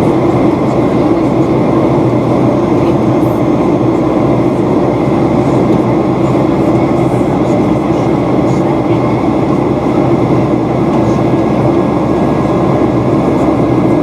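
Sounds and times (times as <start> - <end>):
airplane cabin drone: 0.0 - 14.0.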